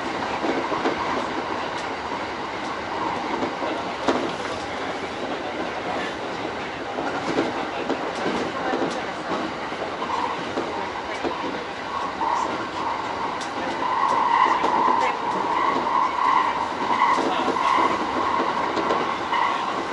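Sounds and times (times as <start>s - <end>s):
train rumble: 0.0s - 19.9s
wheels clicking over rail joints: 7.0s - 19.9s.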